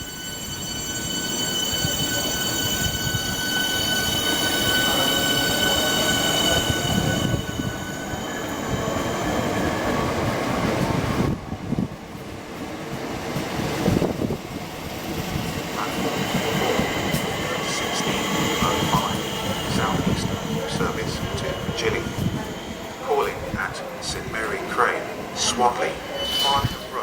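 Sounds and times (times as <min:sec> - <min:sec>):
high-pitched wheel squeal: 0:00.0 - 0:09.6, 0:25.4 - 0:27.0
train wheels rumbling: 0:00.0 - 0:27.0.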